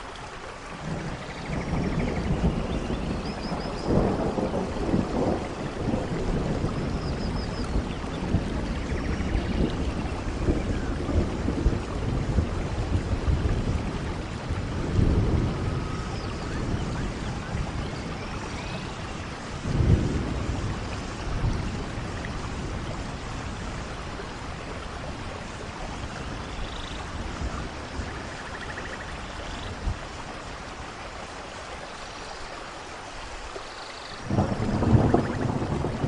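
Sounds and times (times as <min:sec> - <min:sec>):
steady rain falling: 0:00.0 - 0:36.0
low rumbles of thunder: 0:00.7 - 0:31.2, 0:34.2 - 0:36.0.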